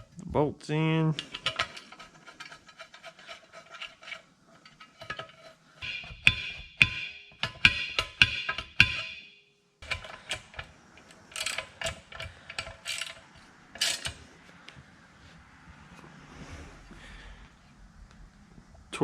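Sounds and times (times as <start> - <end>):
hand tools clinking: 1.2 - 14.3
ratchet wrench clicking: 5.8 - 9.2, 9.8 - 14.2.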